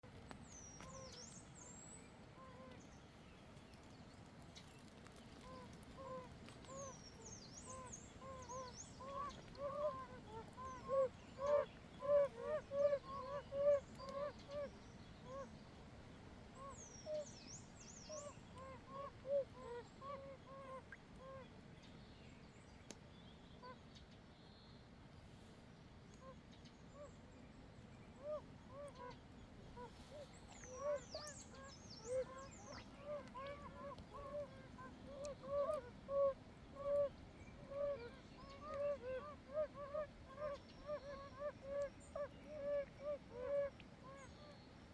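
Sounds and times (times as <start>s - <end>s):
toads calling: 6.0s - 14.7s, 30.5s - 44.3s.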